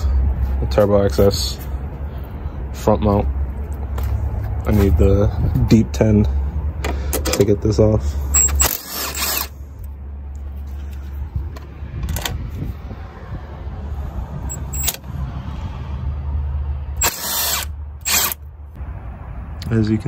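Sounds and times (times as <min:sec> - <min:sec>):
impact driver bursts: 0:08.4 - 0:09.5, 0:17.0 - 0:18.4.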